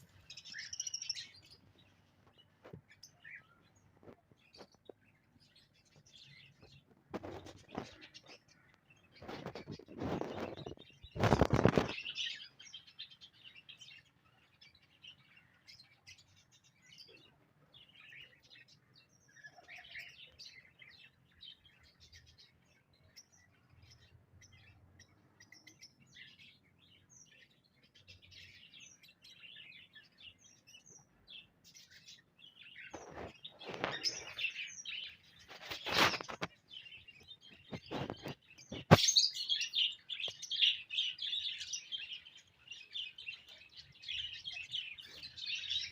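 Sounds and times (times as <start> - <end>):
cage birds chirping: 0.0 - 45.9.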